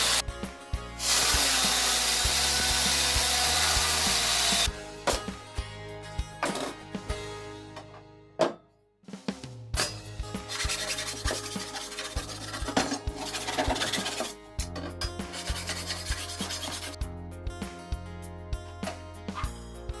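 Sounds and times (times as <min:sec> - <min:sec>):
wood being sanded: 0:01.0 - 0:04.7, 0:10.5 - 0:14.3, 0:15.3 - 0:17.0.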